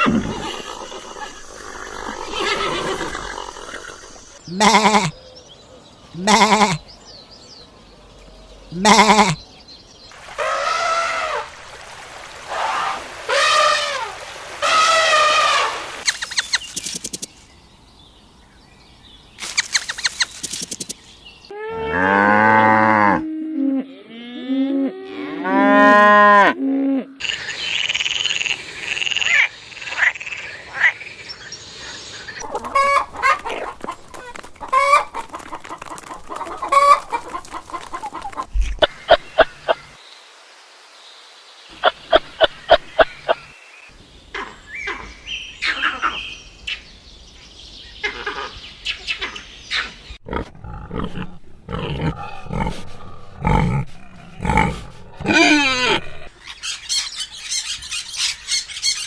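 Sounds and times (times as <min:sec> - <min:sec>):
animals calling: 0:00.0 - 0:07.0, 0:08.3 - 0:09.5, 0:27.2 - 0:40.0, 0:41.7 - 0:43.6, 0:44.3 - 0:47.0, 0:47.9 - 0:59.0.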